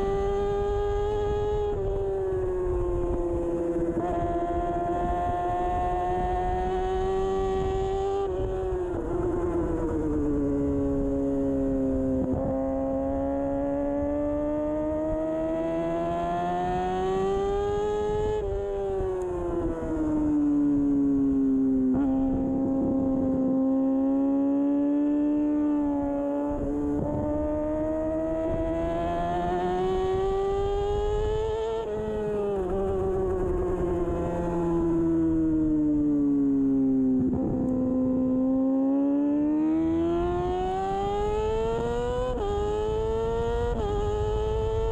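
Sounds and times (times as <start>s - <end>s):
motorcycle engine revving hard: 21.9s - 35.0s, 37.2s - 44.9s.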